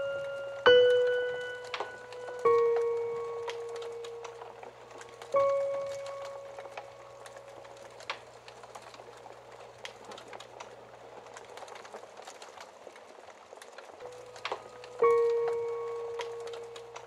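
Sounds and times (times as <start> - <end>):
piano note: 0.0 - 10.3, 14.0 - 17.0
wood fire crackling: 0.0 - 17.0.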